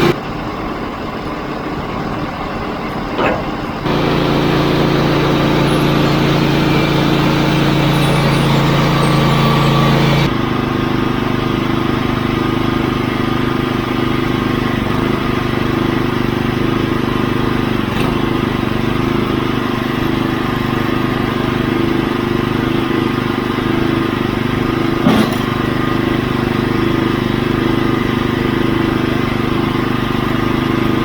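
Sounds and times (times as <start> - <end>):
sawmill engine running: 0.0 - 31.0
sharp knock: 3.2 - 3.7.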